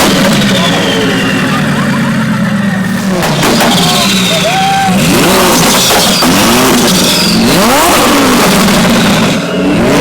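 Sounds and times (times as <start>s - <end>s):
sports car engine revving: 0.0s - 10.0s.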